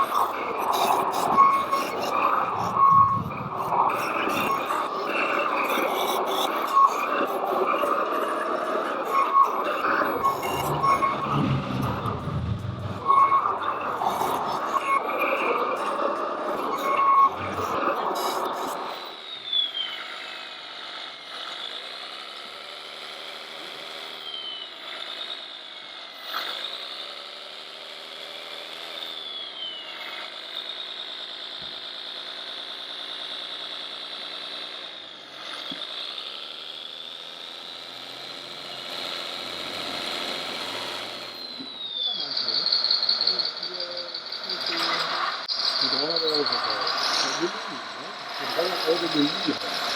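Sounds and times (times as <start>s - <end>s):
diesel engine sound revving: 0.0s - 19.1s, 37.1s - 49.9s
electric motor whine: 0.0s - 49.9s.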